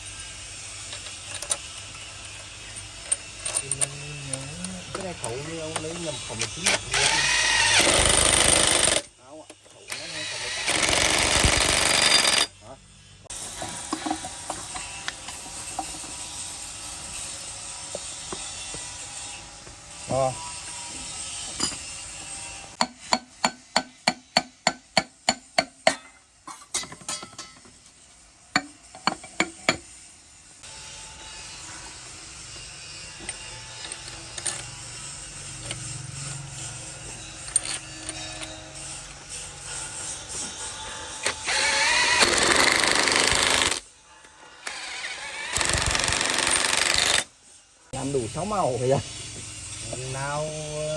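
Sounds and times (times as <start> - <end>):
metal tools clicking on engine parts: 0.9 - 10.0, 33.2 - 36.6, 37.4 - 38.6
hand tools clicking on metal: 2.7 - 12.5, 41.2 - 43.8, 45.4 - 47.3.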